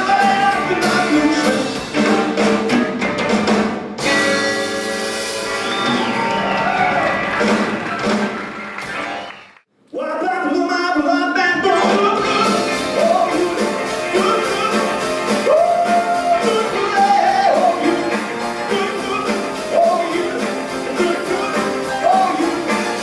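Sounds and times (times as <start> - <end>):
person singing: 0.0 - 2.2, 10.0 - 23.0
live rock band playing: 0.0 - 9.5, 11.8 - 23.0.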